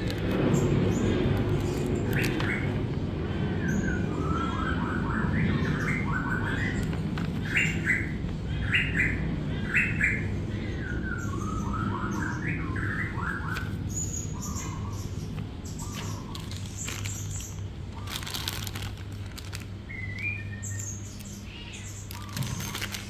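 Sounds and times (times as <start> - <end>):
steady low noise: 0.0 - 13.2
small birds chirping: 0.0 - 23.0.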